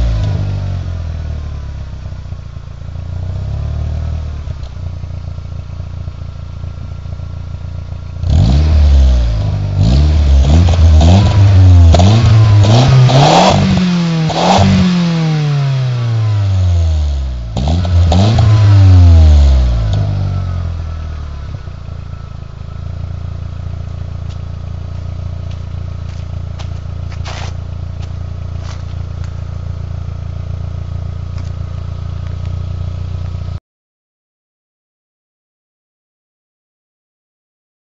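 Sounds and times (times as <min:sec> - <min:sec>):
car engine idling and revving: 0:00.0 - 0:33.6
exhaust crackles: 0:06.7 - 0:33.6.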